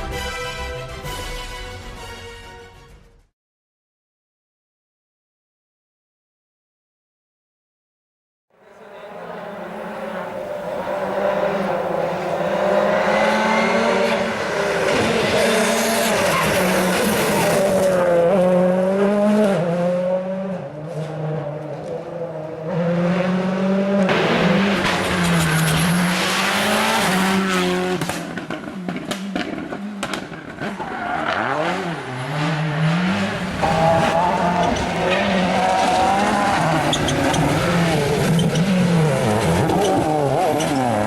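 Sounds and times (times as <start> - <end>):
rally car engine revving: 8.6 - 41.0.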